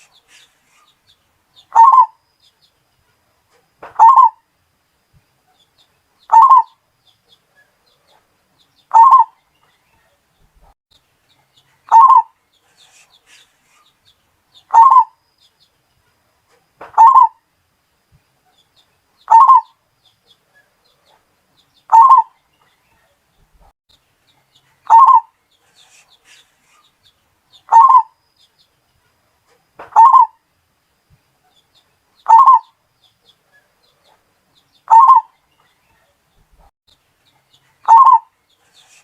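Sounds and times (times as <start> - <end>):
dove cooing: 1.7 - 2.2, 3.9 - 4.4, 6.3 - 6.7, 8.9 - 9.3, 11.9 - 12.4, 14.7 - 15.2, 17.0 - 17.4, 19.3 - 19.7, 21.9 - 22.3, 24.9 - 25.3, 27.7 - 28.1, 29.9 - 30.4, 32.3 - 32.7, 34.9 - 35.3, 37.8 - 39.0.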